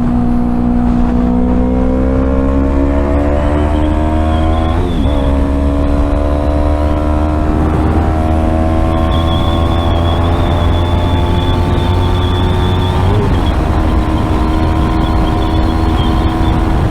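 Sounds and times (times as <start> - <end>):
motorcycle engine accelerating: 0.0 - 16.9
low rumble: 4.6 - 16.9.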